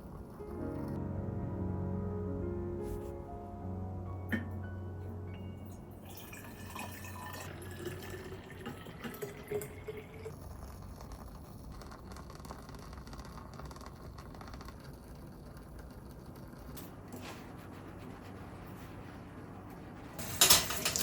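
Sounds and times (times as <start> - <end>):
water pouring into a container: 6.0 - 16.7.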